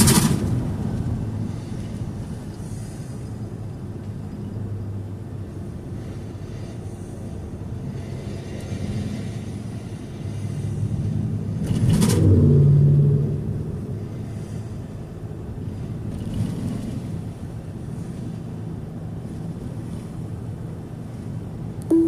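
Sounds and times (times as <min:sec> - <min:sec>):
car engine and road rumble: 0:00.0 - 0:22.0
low hum: 0:09.9 - 0:15.6, 0:21.7 - 0:22.0.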